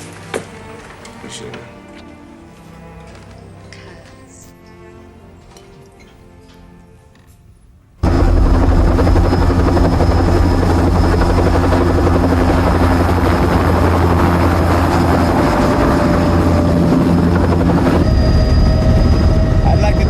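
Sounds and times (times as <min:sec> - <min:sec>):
helicopter rotor and engine: 0:08.0 - 0:20.0.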